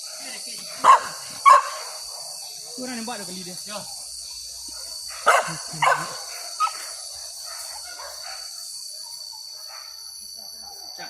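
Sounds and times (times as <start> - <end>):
dog barking: 0.8 - 2.9, 4.6 - 10.0.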